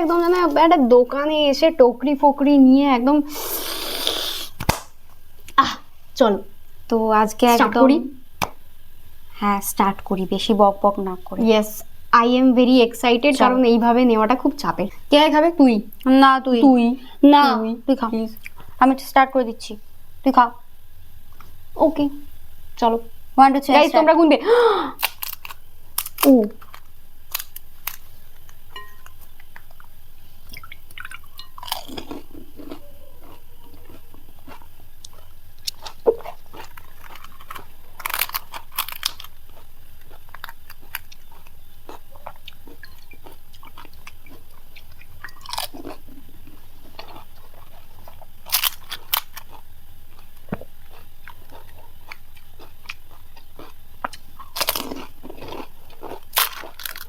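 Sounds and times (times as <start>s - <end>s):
crisp shells crunching when chewed: 25.0s - 57.0s.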